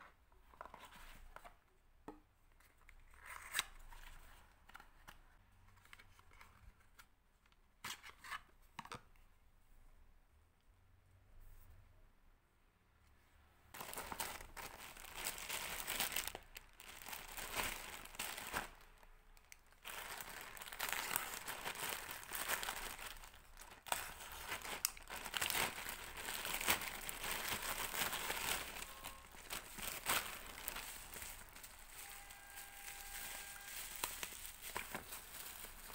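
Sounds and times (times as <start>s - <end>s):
packaging crinkling and rustling: 13.8s - 35.9s
packaging tearing: 19.8s - 35.9s.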